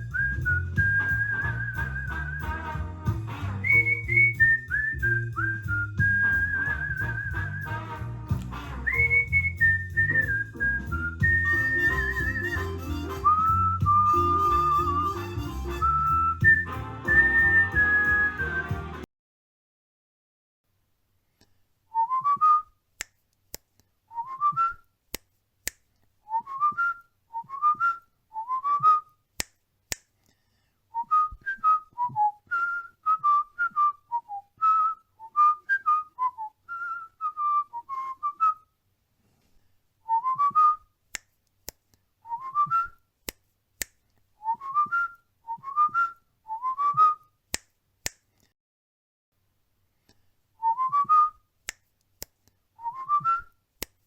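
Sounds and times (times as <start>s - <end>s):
cockatiel whistling a tune: 0.0s - 2.6s, 3.6s - 7.8s, 8.9s - 18.8s, 52.8s - 53.5s.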